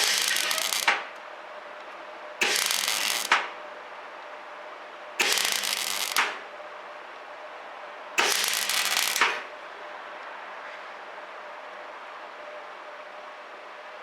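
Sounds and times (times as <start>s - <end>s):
welding arc crackling: 0.0s - 1.1s, 2.4s - 3.5s, 5.2s - 6.4s, 8.2s - 9.4s.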